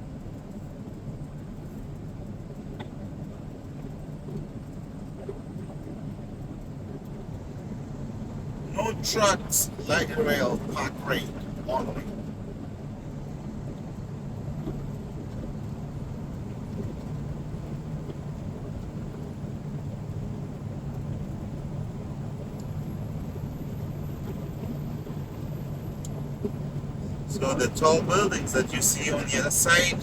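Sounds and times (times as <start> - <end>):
truck diesel engine driving: 8.2 - 12.2, 15.8 - 30.0.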